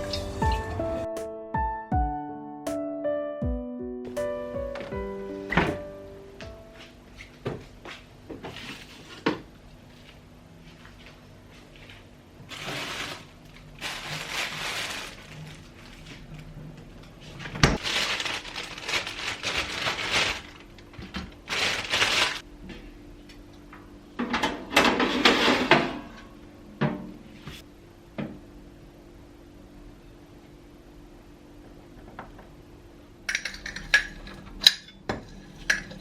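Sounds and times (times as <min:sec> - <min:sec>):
rustling and scraping: 0:08.4 - 0:22.4.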